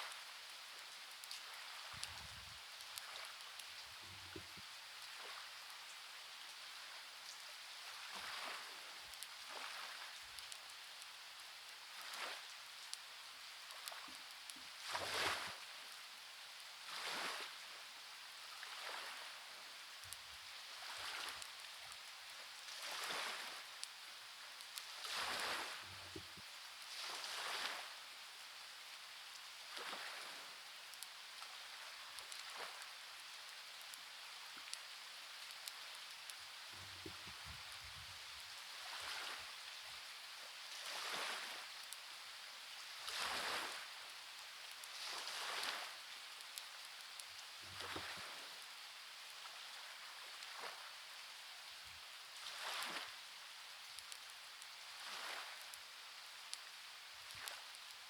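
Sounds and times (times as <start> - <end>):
steady rain hiss: 0.0 - 58.0
faint clicks: 53.9 - 54.8.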